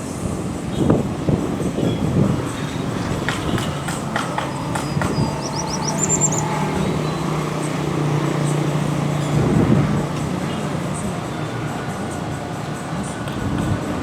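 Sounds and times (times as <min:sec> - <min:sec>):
low engine hum: 0:00.0 - 0:14.0
train wheels knocking on rail joints: 0:01.0 - 0:14.0
high chirps: 0:01.8 - 0:09.3.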